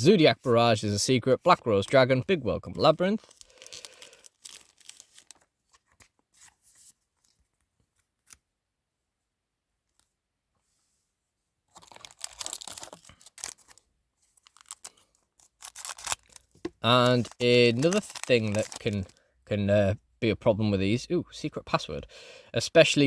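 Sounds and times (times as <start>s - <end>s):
foil pack crinkling and tearing: 3.2s - 6.5s, 11.7s - 13.8s, 14.4s - 19.3s.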